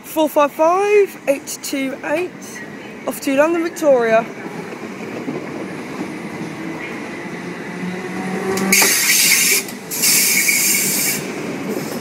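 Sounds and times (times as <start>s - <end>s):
train passing with rushing hiss: 4.2s - 12.0s.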